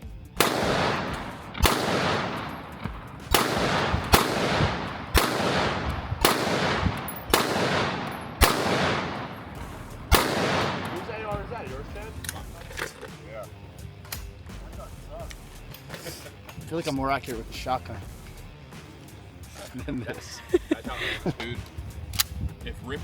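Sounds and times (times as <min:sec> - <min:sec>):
gunshots ringing out: 0:00.0 - 0:12.7.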